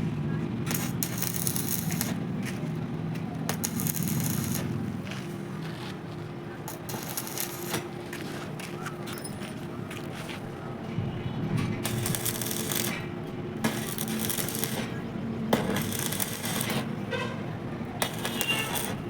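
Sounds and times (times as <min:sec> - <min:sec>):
arc welding crackle: 0:00.6 - 0:02.8, 0:03.4 - 0:05.1, 0:06.6 - 0:08.1, 0:11.1 - 0:17.2, 0:17.8 - 0:19.0.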